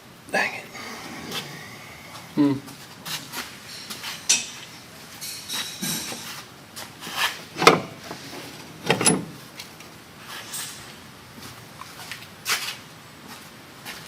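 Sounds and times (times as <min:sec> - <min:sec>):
metal tools clanking: 0:03.6 - 0:06.4, 0:07.1 - 0:09.4.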